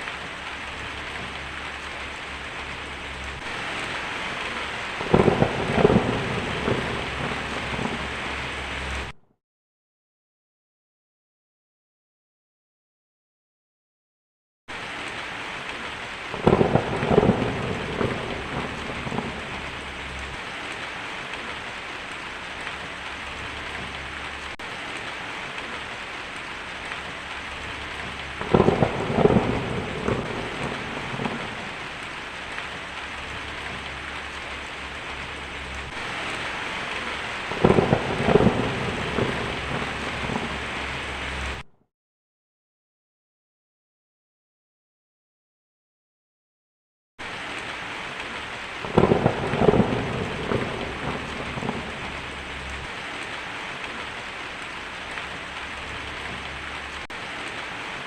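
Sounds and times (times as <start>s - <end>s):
steady rain falling: 0.0s - 9.2s, 14.7s - 41.7s, 47.2s - 58.0s
thunder claps: 0.1s - 9.2s, 16.3s - 21.6s, 26.6s - 41.6s, 48.8s - 54.1s.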